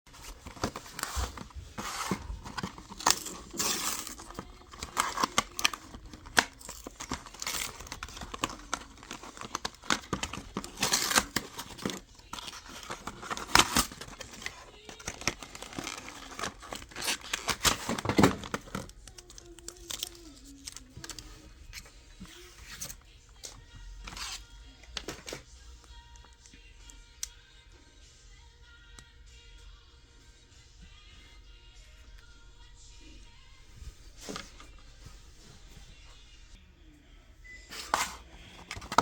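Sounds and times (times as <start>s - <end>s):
packaging crinkling and tearing: 0.1s - 21.3s, 38.6s - 39.0s.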